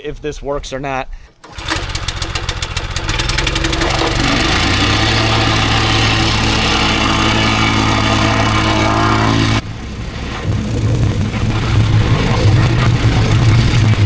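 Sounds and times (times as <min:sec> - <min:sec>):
plate compactor engine: 0:01.4 - 0:09.6, 0:11.4 - 0:14.0.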